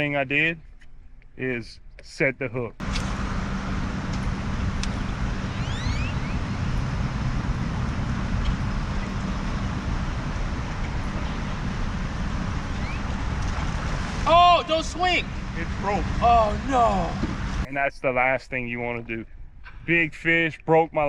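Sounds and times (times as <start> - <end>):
low motor hum: 2.8 - 17.7
water noise: 2.8 - 17.7
faint high chirps: 5.4 - 6.9.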